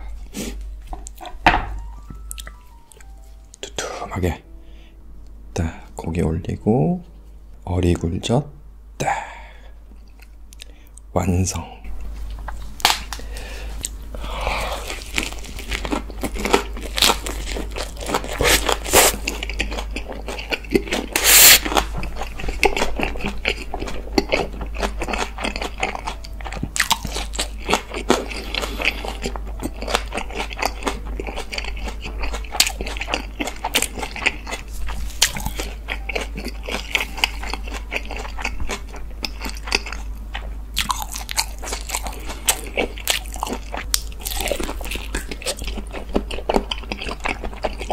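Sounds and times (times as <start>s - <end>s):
person chewing crunchy lettuce: 12.9s - 47.9s.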